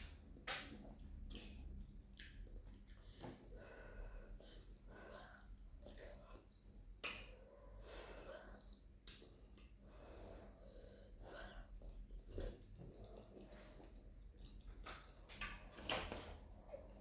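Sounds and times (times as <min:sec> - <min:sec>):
soft chewing: 0:00.0 - 0:17.0
breathing: 0:02.9 - 0:06.5, 0:07.3 - 0:08.8, 0:09.8 - 0:14.0.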